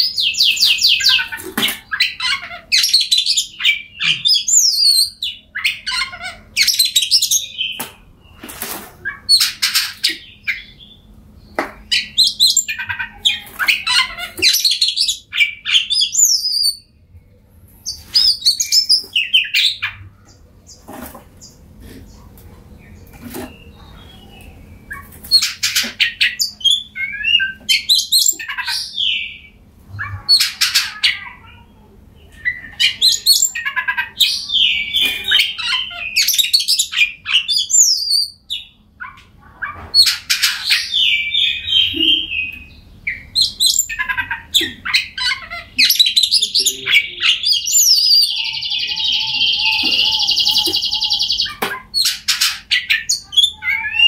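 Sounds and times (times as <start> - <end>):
bird singing whistled phrases: 45.8 - 51.6
long even bird trill: 46.8 - 51.6.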